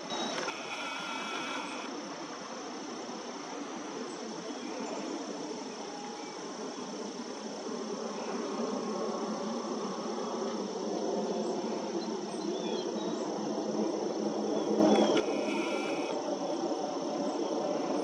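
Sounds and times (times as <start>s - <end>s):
faint chirps: 0.0s - 1.9s, 14.9s - 16.3s
high-pitched insect drone: 0.0s - 18.0s.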